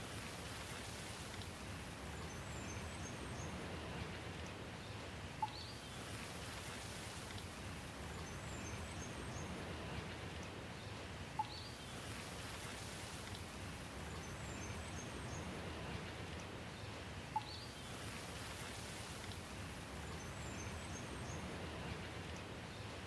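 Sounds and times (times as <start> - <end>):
steady rainfall: 0.0 - 23.0
faint high bird chirps: 5.4 - 5.9, 11.4 - 12.0, 17.3 - 18.0.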